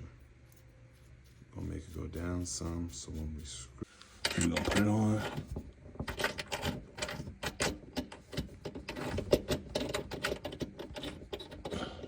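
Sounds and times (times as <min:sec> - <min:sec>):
metal hardware clicking and rattling: 0:04.2 - 0:11.9.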